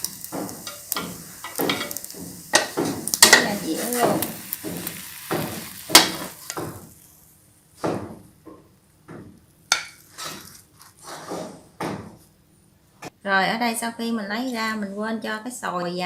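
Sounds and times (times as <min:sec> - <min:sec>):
utensil scraping a frying pan: 0:00.0 - 0:06.9, 0:09.7 - 0:11.8
oil sizzling: 0:00.0 - 0:07.4, 0:09.6 - 0:11.3.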